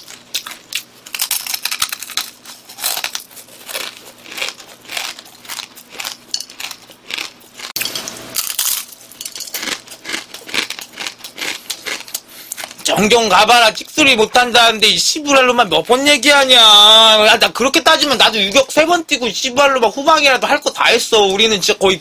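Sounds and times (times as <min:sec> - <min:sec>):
crunching dry noodles: 0:00.0 - 0:13.0.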